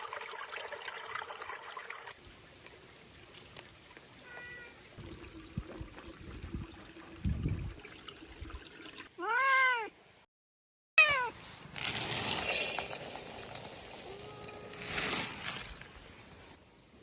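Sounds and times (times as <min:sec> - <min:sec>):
cat meowing: 0:04.2 - 0:04.8, 0:09.2 - 0:10.0, 0:11.0 - 0:11.4
rustling: 0:11.4 - 0:16.6.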